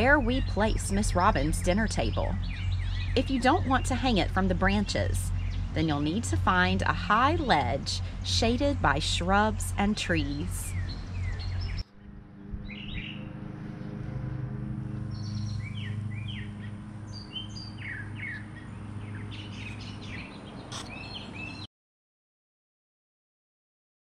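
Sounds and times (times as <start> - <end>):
songbirds chirping: 0.0 - 12.0, 14.8 - 21.7
low background hum: 0.0 - 21.2.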